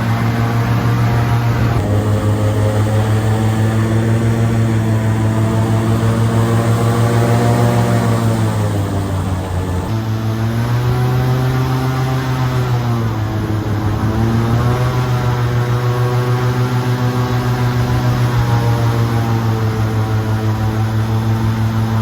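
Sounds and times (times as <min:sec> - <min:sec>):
airboat engine and propeller drone: 0:00.0 - 0:22.0.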